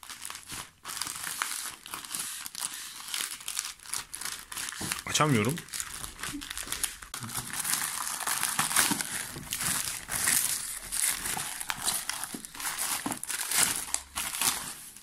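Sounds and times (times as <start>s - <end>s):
packaging crinkling and tearing: 0.0s - 15.0s.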